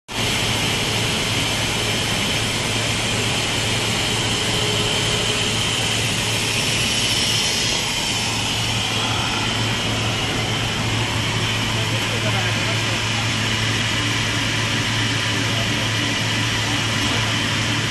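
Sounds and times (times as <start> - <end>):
laminating machine running: 0.1 - 17.9.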